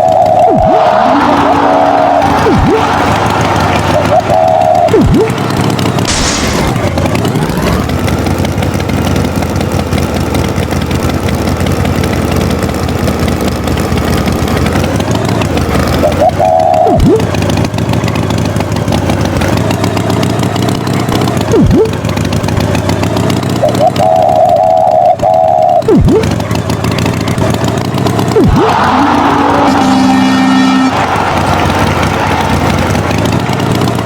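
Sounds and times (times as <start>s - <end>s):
animated tractor engine running: 0.0s - 34.0s
quick falling swoops: 6.1s - 7.0s.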